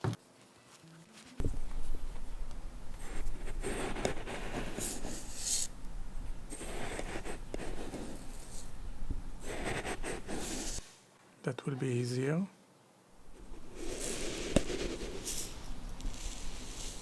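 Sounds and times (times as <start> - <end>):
sugar packets rustling: 0.2 - 2.6, 13.3 - 17.0.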